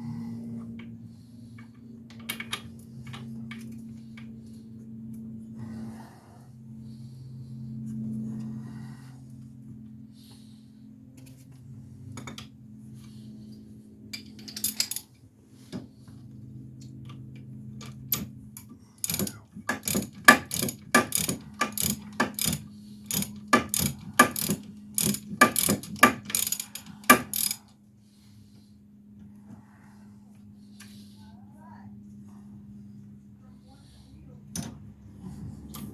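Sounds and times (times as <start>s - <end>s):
ratchet wrench clicking: 19.0s - 27.6s.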